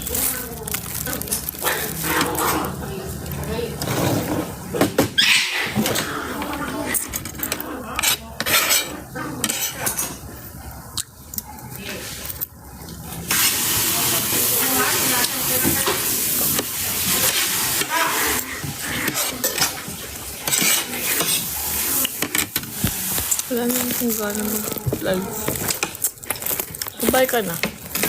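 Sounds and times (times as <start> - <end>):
dishes and cutlery clinking: 5.7 - 10.4, 14.7 - 24.0.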